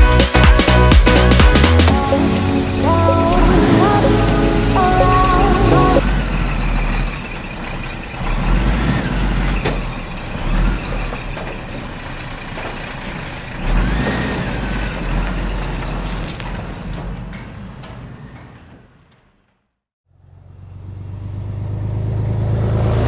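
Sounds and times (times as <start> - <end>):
background music: 0.0 - 6.0
heavy vehicle engine rumbling: 0.0 - 23.0
faint squealing glides: 2.0 - 19.1.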